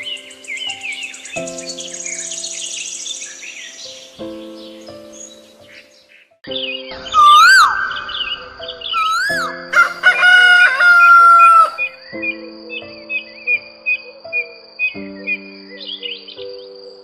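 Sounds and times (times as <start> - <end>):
background music: 0.0 - 17.0
rooster crowing: 7.2 - 7.7, 9.0 - 11.9.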